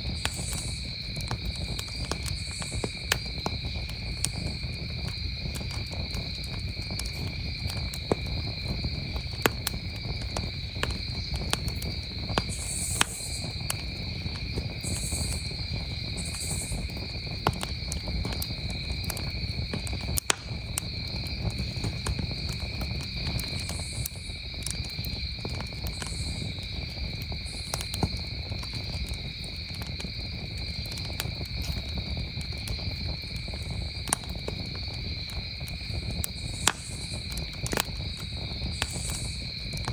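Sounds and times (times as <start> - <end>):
campfire crackling and popping: 0.0 - 39.9
crickets trilling: 0.0 - 39.9
faint high hissing bursts: 12.5 - 13.5, 38.8 - 39.5.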